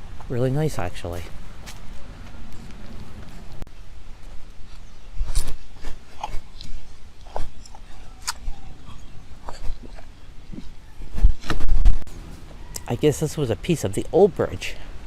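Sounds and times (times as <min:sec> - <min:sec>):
footsteps crunching on trail: 0:01.2 - 0:10.7.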